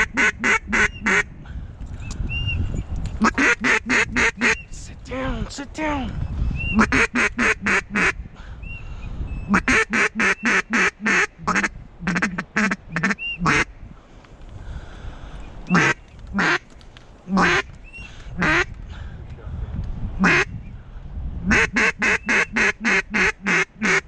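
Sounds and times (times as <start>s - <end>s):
duck quacking: 0.0s - 1.3s, 3.2s - 4.6s, 6.8s - 8.2s, 9.5s - 13.7s, 15.7s - 16.6s, 17.3s - 17.7s, 18.4s - 18.7s, 20.2s - 20.5s, 21.5s - 24.0s.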